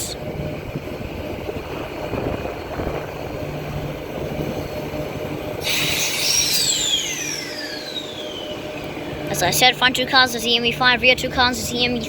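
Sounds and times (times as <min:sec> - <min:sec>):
electric train rumble: 0:00.0 - 0:12.0
loud air hiss: 0:05.6 - 0:09.3.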